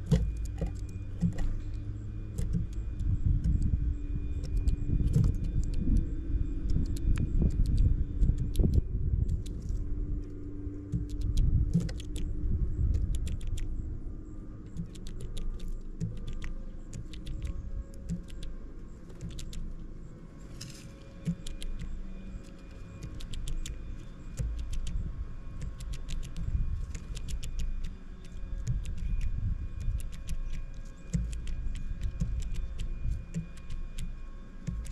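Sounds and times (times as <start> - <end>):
birds tapping at a feeder: 0.0 - 3.7, 25.6 - 34.9
steady low rumble: 0.0 - 34.9.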